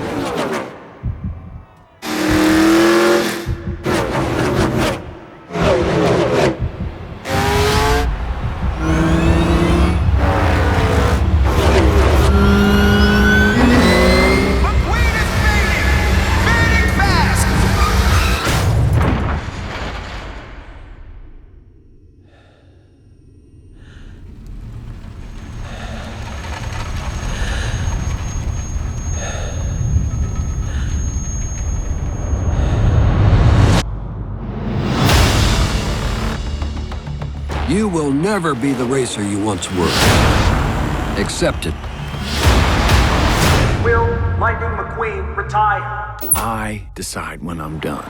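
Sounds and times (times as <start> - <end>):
race car engines passing: 1.9 - 18.5, 37.5 - 45.4
steady low rumble: 3.3 - 4.0, 5.0 - 13.8, 22.8 - 38.4
thin high whine: 26.7 - 33.1.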